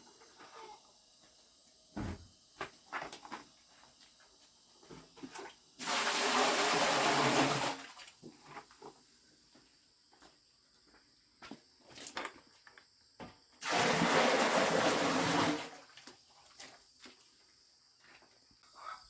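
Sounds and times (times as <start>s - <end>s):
water gushing: 5.8s - 8.1s, 13.6s - 16.0s.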